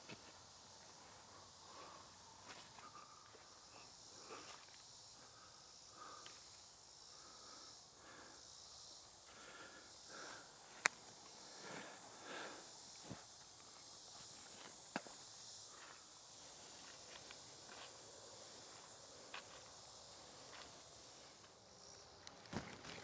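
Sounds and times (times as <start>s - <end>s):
footsteps in the woods: 0.0s - 5.4s, 9.2s - 23.0s
insects droning: 0.0s - 23.0s
sharp click: 10.7s - 11.0s.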